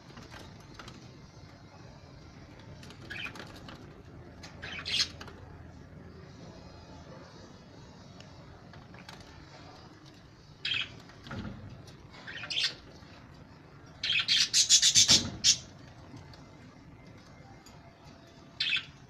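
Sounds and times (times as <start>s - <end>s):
birds chirping and squawking: 2.7s - 6.2s, 9.4s - 16.2s, 18.3s - 19.0s.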